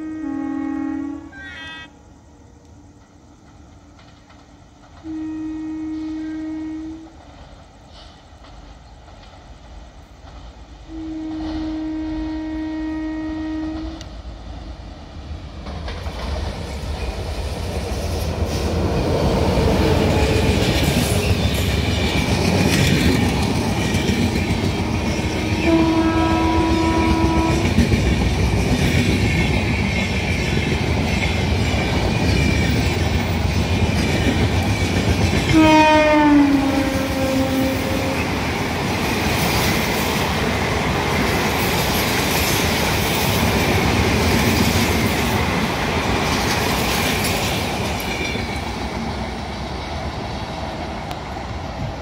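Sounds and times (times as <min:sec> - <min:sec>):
locomotive horn: 0:00.0 - 0:01.9, 0:05.0 - 0:07.2, 0:10.9 - 0:14.2, 0:24.8 - 0:27.8, 0:35.5 - 0:38.4
train coaches rumbling over rail joints: 0:02.4 - 0:52.0.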